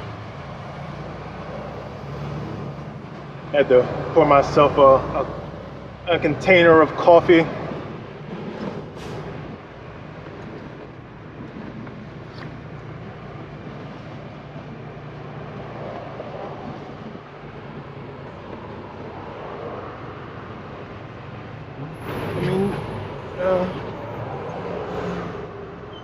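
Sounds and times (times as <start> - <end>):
truck diesel engine droning: 20.3 - 26.0.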